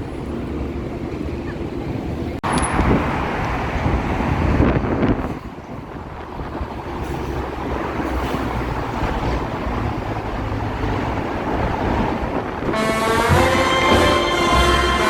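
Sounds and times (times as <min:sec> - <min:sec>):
road and wind noise: 0:00.0 - 0:15.0
music playing: 0:12.8 - 0:15.0.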